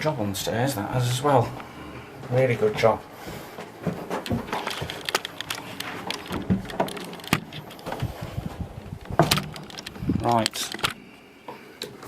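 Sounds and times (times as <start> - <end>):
footsteps: 0.9 - 11.6
knocks and thumps of handling: 2.7 - 11.0.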